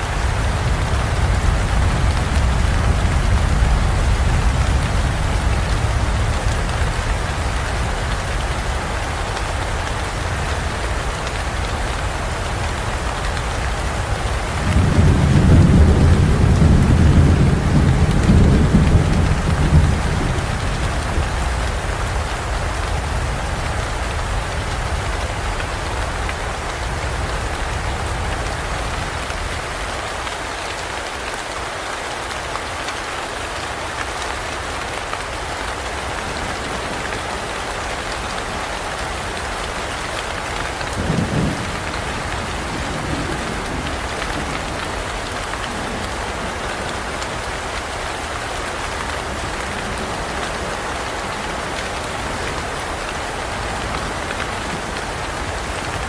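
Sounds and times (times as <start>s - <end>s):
heavy rain in forest: 0.0s - 56.0s
low thunder rumble: 13.7s - 25.4s, 40.6s - 46.6s.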